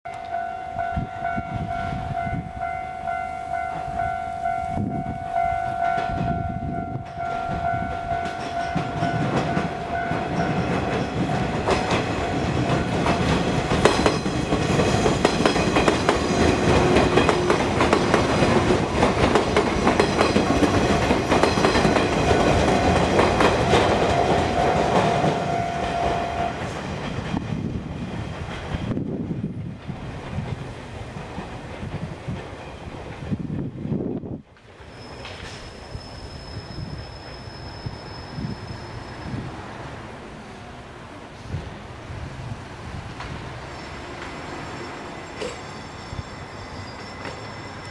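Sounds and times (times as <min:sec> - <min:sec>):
train rumble: 0:00.1 - 0:47.9
train wheels clacking over rail joints: 0:07.1 - 0:29.0, 0:29.8 - 0:33.4
level crossing alarm ringing: 0:21.3 - 0:26.6.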